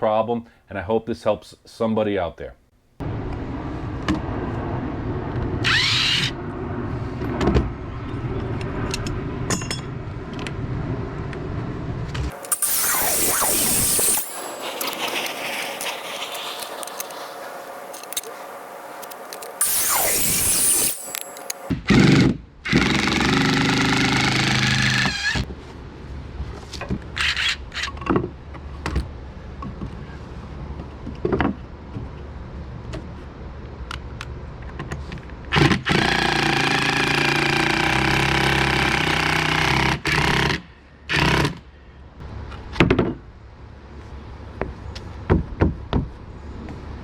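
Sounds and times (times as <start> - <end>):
power tool running: 12.3 - 24.7.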